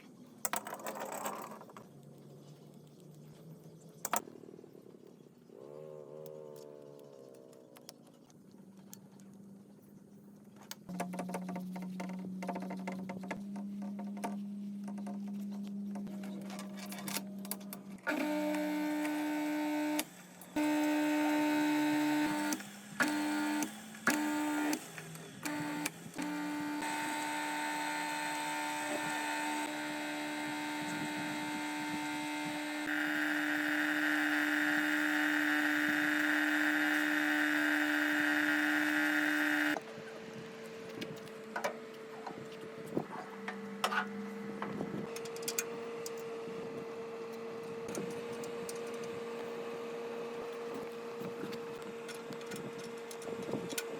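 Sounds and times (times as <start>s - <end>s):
small machine motor humming: 10.9s - 53.9s.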